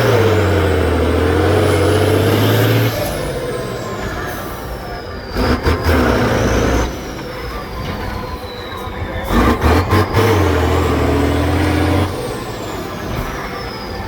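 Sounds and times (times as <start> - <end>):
truck engine revving: 0.0 - 14.0
engine knocks: 9.1 - 14.0.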